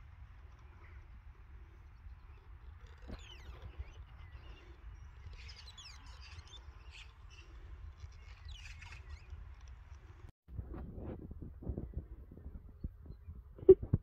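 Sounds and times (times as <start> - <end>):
small birds chirping: 0.0 - 10.3.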